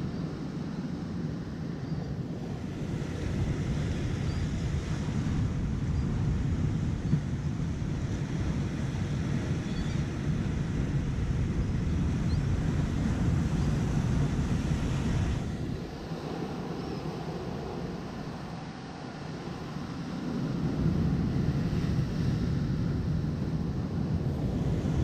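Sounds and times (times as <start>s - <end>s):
wind buffeting microphone: 0.0s - 25.0s
surf washing: 2.4s - 25.0s.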